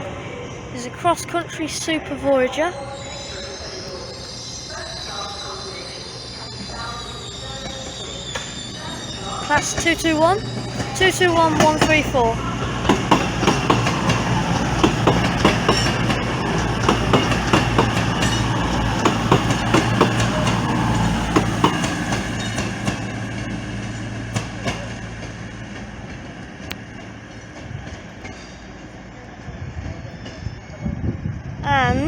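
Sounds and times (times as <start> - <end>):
train wheels clicking over joints: 7.6 - 29.1.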